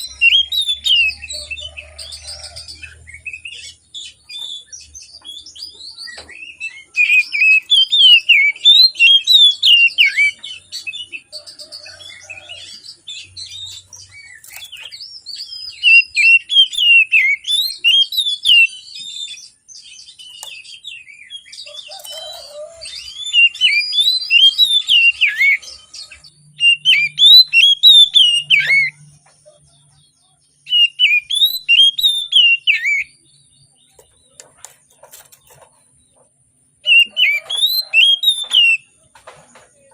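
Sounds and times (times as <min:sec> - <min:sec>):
bird singing whistled notes: 0:00.0 - 0:29.2, 0:30.5 - 0:33.9, 0:36.8 - 0:39.0
soft bird twittering: 0:00.0 - 0:39.0.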